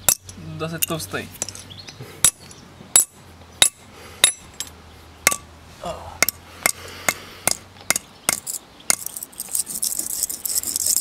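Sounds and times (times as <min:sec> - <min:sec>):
high-pitched metal scraping rattle: 0:08.4 - 0:11.0.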